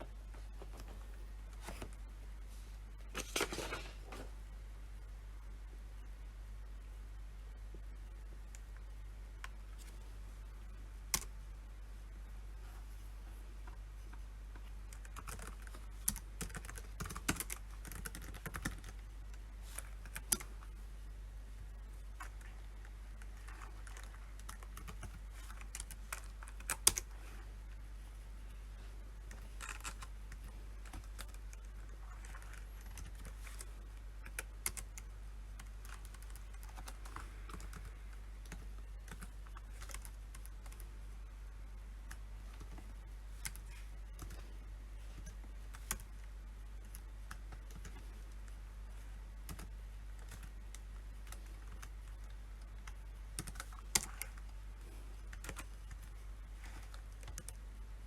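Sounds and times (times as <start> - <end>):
steady low hum: 0.0 - 58.0
typing on keyboard: 14.9 - 20.7, 22.2 - 27.1, 29.3 - 40.9, 43.4 - 44.4, 45.2 - 46.1, 46.8 - 48.4, 49.4 - 54.6, 55.3 - 57.6.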